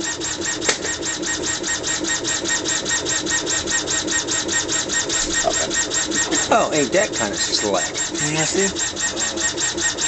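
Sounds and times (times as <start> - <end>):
laser engraver rhythmic buzz: 0.0 - 10.0.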